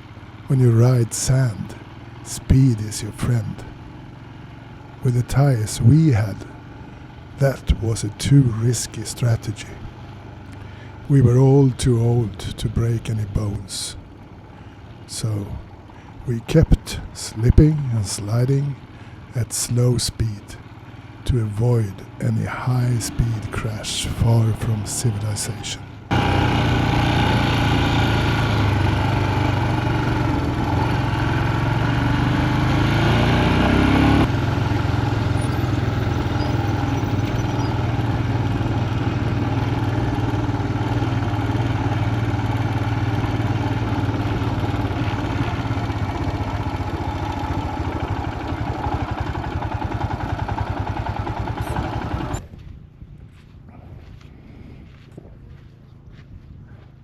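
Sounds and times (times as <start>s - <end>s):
motorbike engine running: 0.0s - 2.3s, 3.2s - 5.0s, 9.8s - 11.1s, 25.9s - 57.0s.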